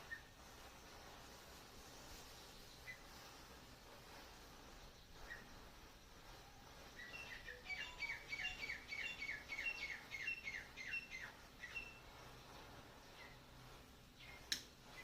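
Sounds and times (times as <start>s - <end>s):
bird chirping: 6.8s - 12.2s, 14.2s - 15.0s.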